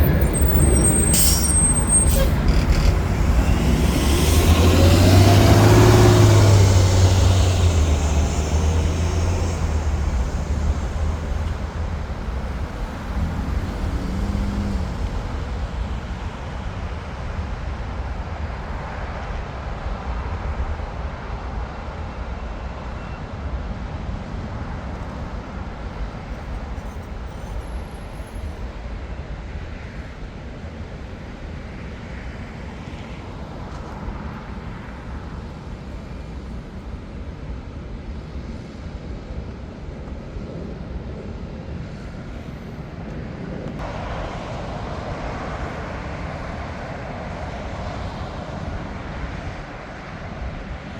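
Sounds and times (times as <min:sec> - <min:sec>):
jet engine rush and rumble: 0:00.0 - 0:19.2.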